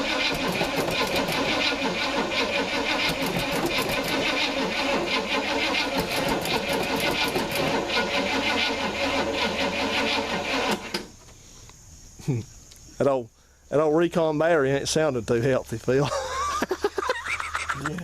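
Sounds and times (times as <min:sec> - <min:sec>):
starter motor cranking engine: 0:00.0 - 0:11.1.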